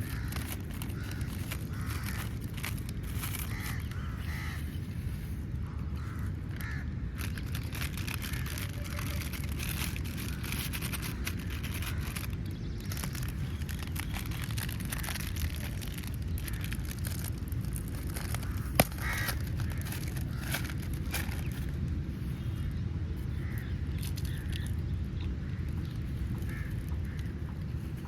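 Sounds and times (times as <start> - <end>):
crows cawing: 0.0 - 21.8, 23.3 - 24.8, 25.4 - 27.8
steady low rumble: 0.0 - 28.0.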